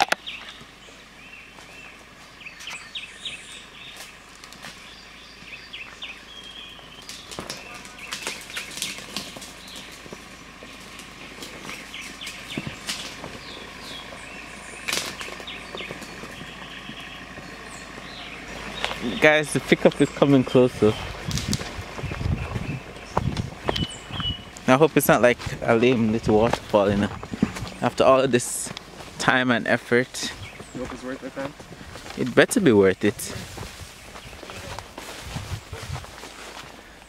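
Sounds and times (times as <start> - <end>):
birds chirping: 0.0 - 37.0
sharp snaps and crackles: 7.0 - 14.1, 14.8 - 16.4, 21.2 - 22.3.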